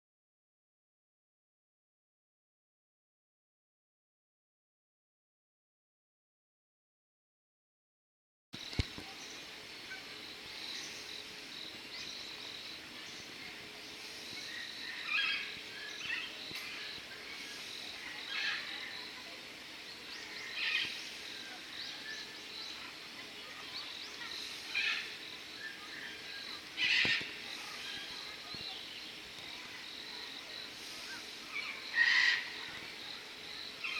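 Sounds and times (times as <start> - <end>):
high insect-like chirring: 8.6 - 33.9.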